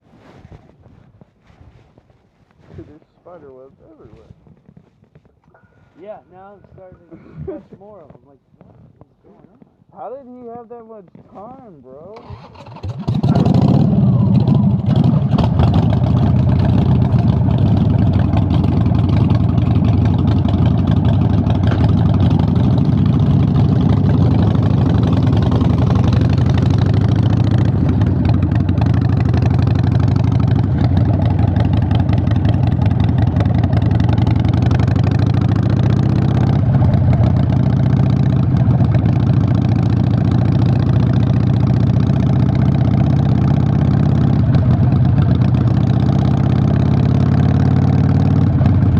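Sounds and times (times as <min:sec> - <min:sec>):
motorcycle engine idling: 0:12.2 - 0:48.9.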